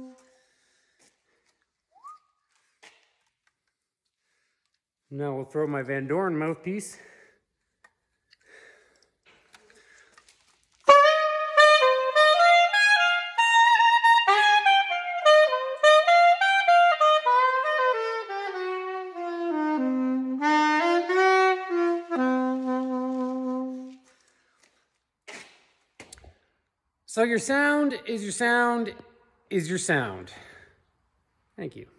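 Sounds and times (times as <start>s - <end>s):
soprano saxophone melody: 0.0s - 0.4s, 10.8s - 24.1s.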